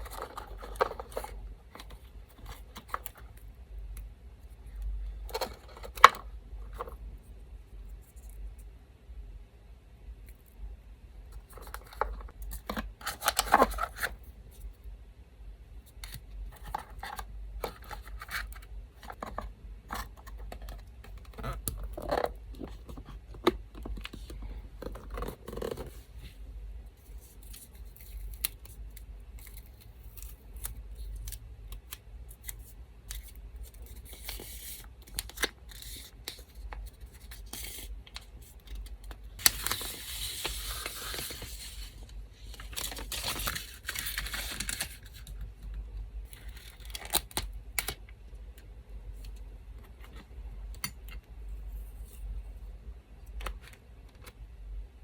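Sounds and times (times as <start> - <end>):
electric fan hum: 0.0 - 55.0
paper rustling: 39.4 - 45.3.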